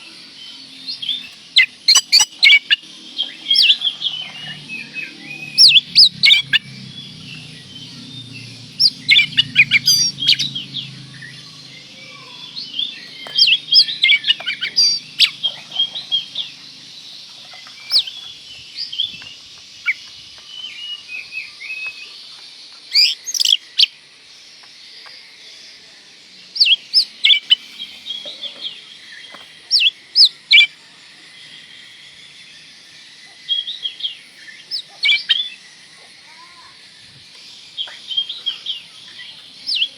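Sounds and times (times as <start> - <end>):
bird singing whistled chirps: 0.0 - 24.0, 26.5 - 39.9
low hum: 3.0 - 19.3.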